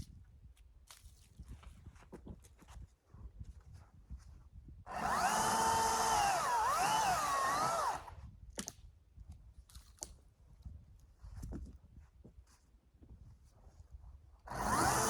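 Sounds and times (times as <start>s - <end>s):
electric chainsaw cutting wood: 4.9s - 8.1s, 14.5s - 15.0s.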